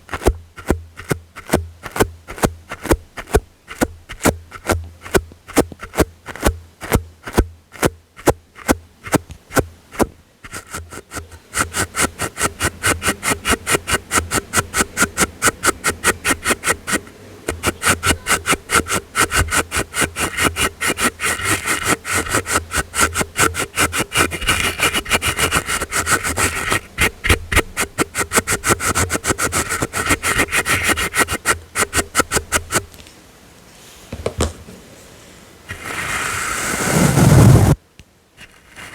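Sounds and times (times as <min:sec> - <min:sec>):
soft brush sweeping: 0:00.0 - 0:33.0, 0:35.2 - 0:37.8.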